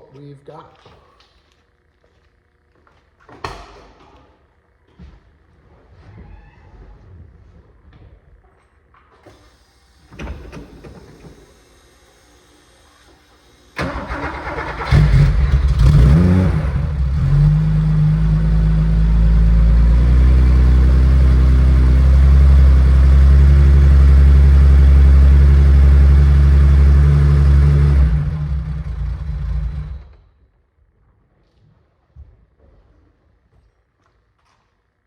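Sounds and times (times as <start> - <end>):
starter motor cranking: 13.8 - 16.4
car engine idling: 13.8 - 30.2.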